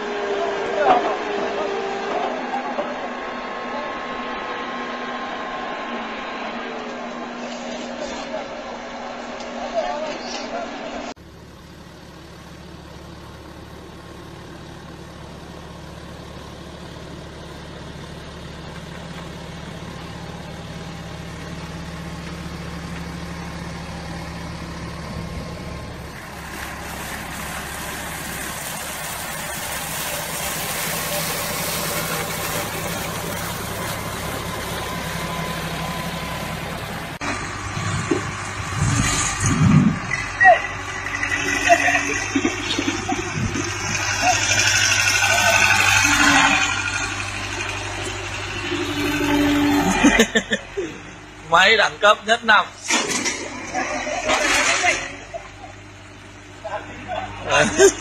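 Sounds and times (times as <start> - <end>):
large machine engine running: 0.0 - 58.0.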